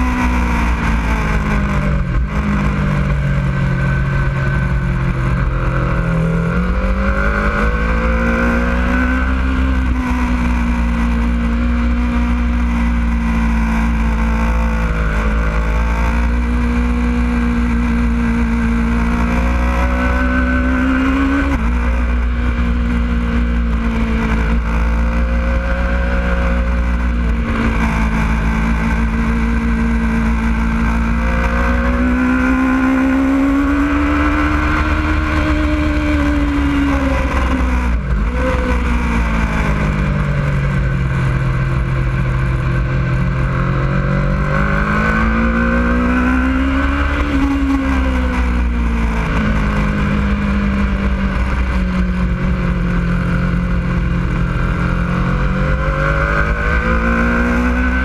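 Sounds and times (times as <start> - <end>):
motorcycle engine at high revs: 0.0 - 58.0
wind rumble on microphone: 0.0 - 58.0.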